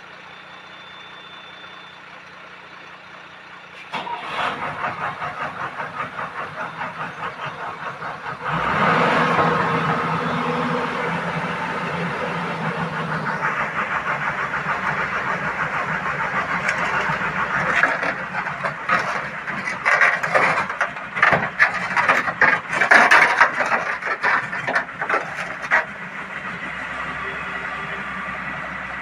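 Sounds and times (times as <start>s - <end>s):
excavator diesel engine running: 0.0s - 29.0s
loud metallic clanks and knocks: 4.7s - 26.0s.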